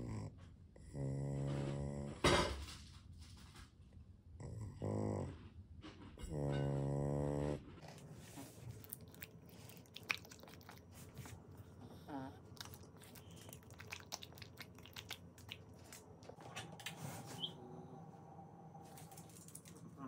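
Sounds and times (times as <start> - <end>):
chewing berries: 6.2 - 17.6.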